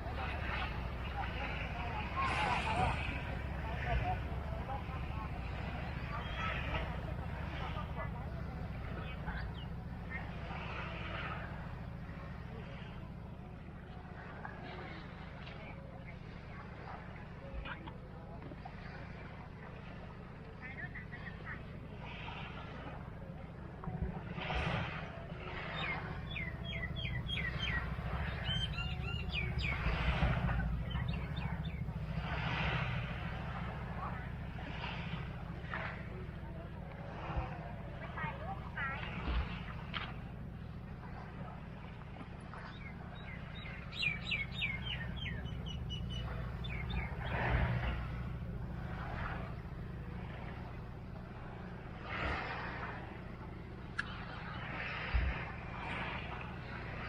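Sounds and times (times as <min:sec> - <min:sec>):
steady low rumble: 0:00.0 - 0:57.0
bird chirping: 0:25.8 - 0:32.2, 0:42.7 - 0:48.4.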